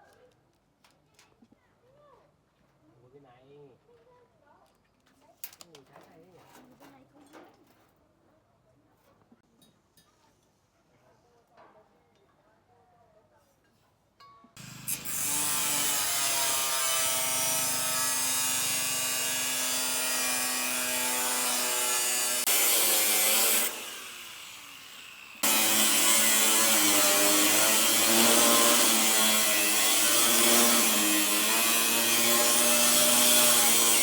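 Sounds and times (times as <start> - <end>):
power tool whining while cutting: 14.6 - 34.0.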